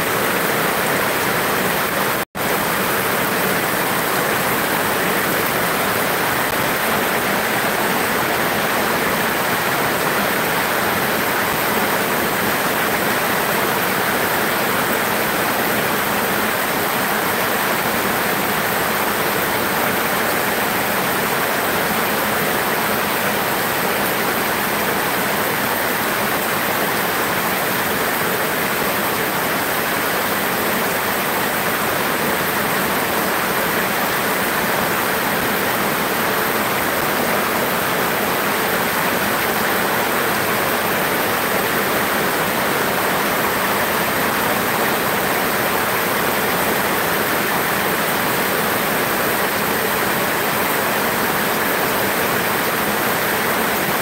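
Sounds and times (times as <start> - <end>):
heavy rain on corrugated roofs: 0.0 - 54.0.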